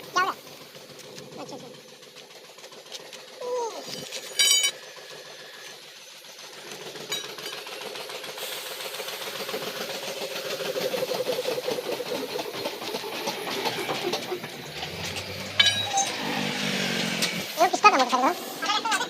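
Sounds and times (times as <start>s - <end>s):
engine chugging: 0.0s - 19.0s.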